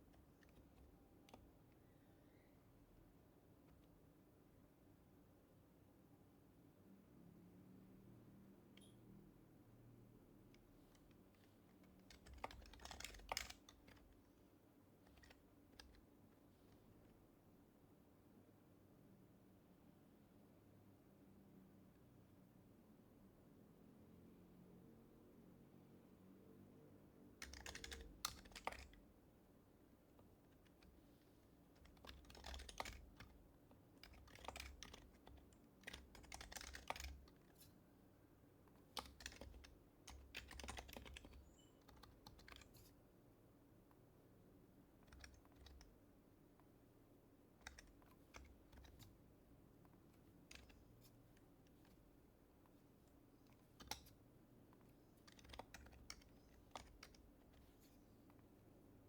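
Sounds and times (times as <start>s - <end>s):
soft muffled keyboard typing: 0.0s - 4.2s, 8.4s - 9.2s, 10.1s - 17.3s, 27.0s - 59.0s.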